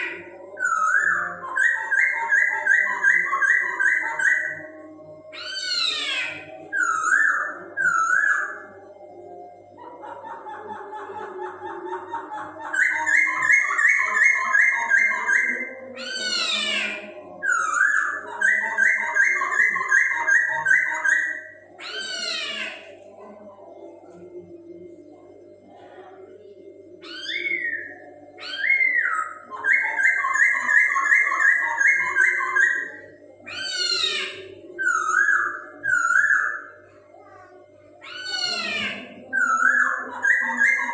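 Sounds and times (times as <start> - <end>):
bird singing whistled notes: 5.4 - 8.7
bird singing whistled phrases: 34.8 - 36.7.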